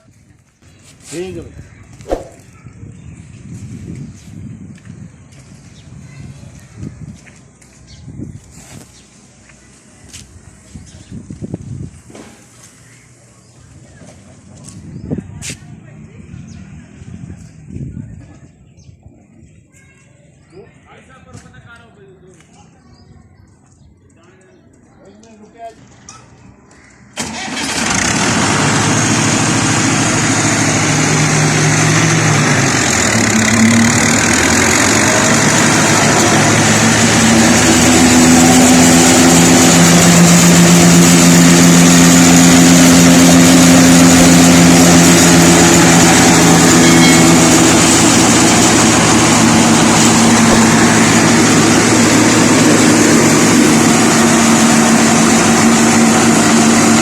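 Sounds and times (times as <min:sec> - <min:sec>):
tractor engine running: 0:27.2 - 0:57.0.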